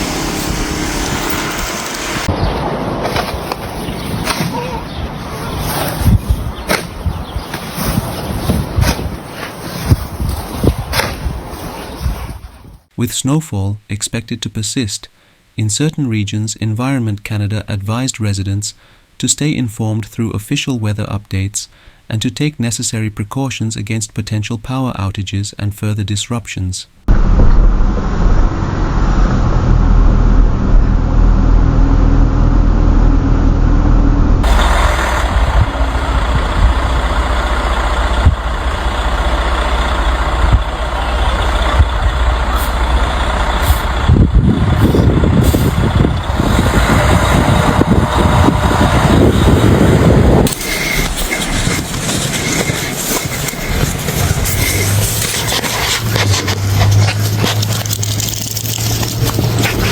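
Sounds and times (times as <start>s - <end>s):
heavy truck rumble: 0.0s - 12.9s, 27.1s - 59.9s
road vehicles: 0.0s - 12.9s, 27.1s - 59.9s.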